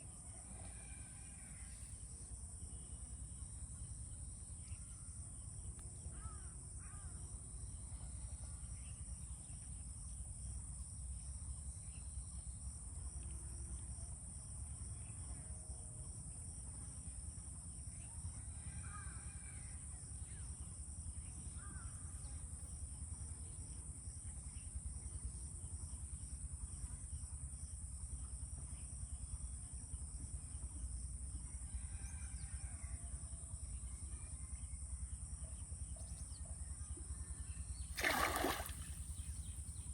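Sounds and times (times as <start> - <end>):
insects droning: 33.5 - 39.9
pulsing insect chirr: 37.7 - 39.9.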